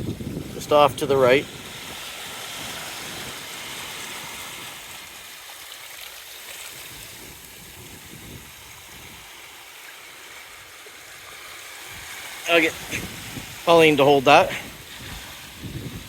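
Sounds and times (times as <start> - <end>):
wind buffeting microphone: 0.0 - 5.2, 6.7 - 9.4, 11.8 - 16.0
sea water washing over rocks: 0.0 - 16.0.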